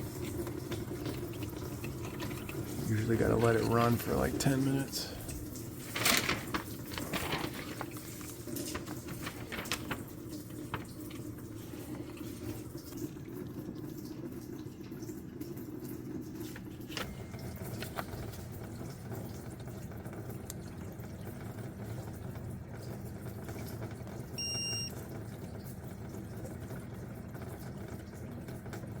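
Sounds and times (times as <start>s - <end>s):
tap water running: 0.0s - 29.0s
short electronic beep: 24.4s - 24.9s.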